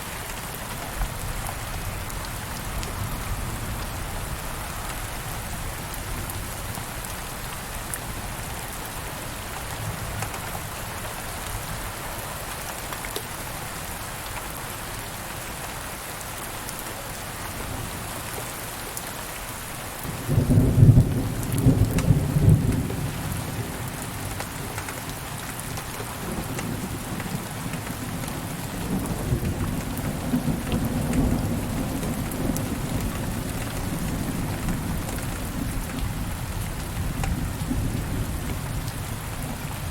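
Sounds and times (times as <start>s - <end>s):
steady rain falling: 0.0s - 39.9s
thunder clap and rumble: 20.2s - 24.5s, 26.2s - 39.9s.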